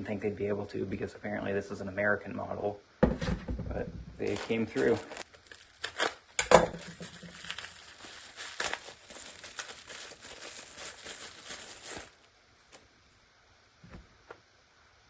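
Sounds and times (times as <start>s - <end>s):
packaging crinkling and rustling: 4.2s - 12.9s.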